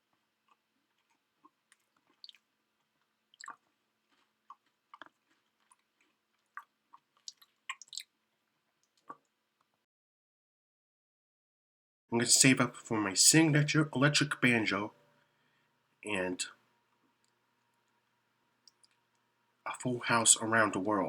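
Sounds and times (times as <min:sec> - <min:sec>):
chewing food: 0:00.0 - 0:09.8, 0:18.6 - 0:19.3.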